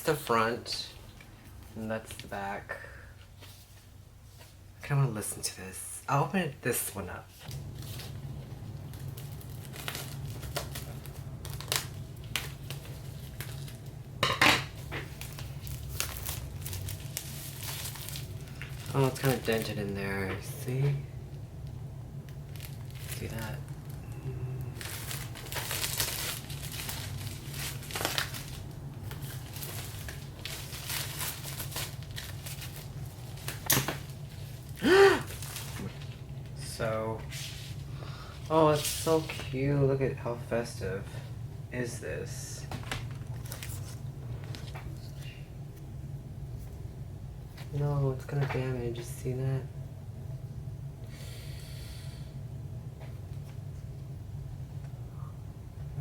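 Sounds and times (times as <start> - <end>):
packaging crinkling: 7.4 - 20.6, 21.6 - 36.6, 42.8 - 45.2
low hum: 7.4 - 48.2.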